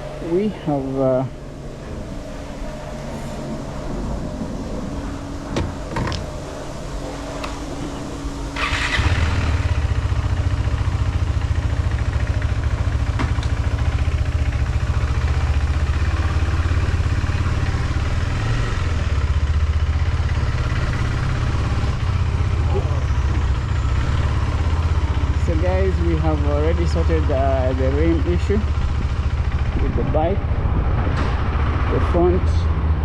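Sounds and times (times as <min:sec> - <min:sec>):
motorcycle engine starting and idling: 0:04.9 - 0:32.4.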